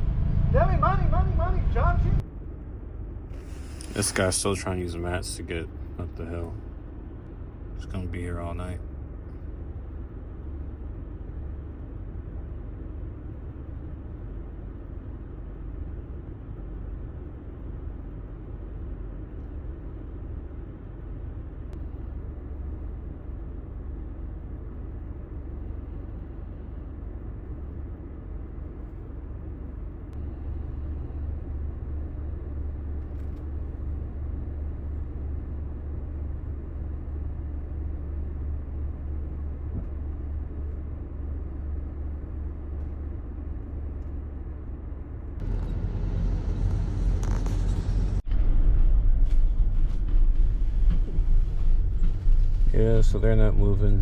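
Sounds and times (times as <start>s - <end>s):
car engine rumble: 0.0s - 54.0s
road noise inside car: 0.0s - 54.0s.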